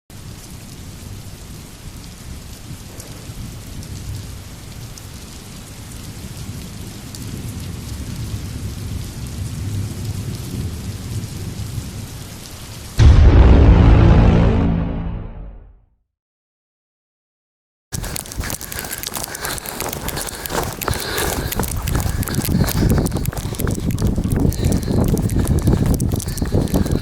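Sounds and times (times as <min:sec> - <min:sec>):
steady rain: 0:00.1 - 0:13.0, 0:17.9 - 0:27.0
low rolling thunder: 0:06.2 - 0:12.3
deep hit with pitched tone: 0:13.0 - 0:15.7.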